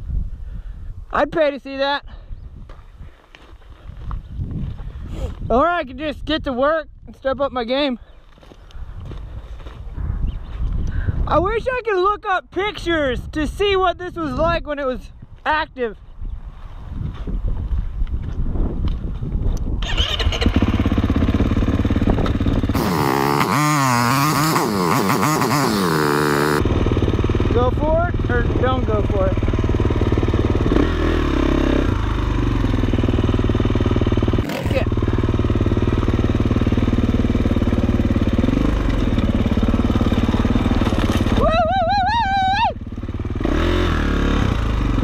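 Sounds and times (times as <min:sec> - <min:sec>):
dirt bike engine revving: 0:19.8 - 0:45.0.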